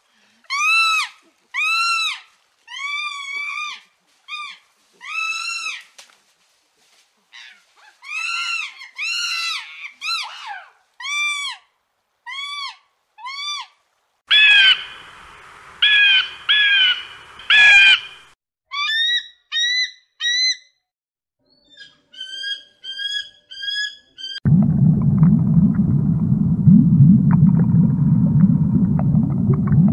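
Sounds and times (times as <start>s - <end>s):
animal calls rising and falling: 14.3s - 18.3s.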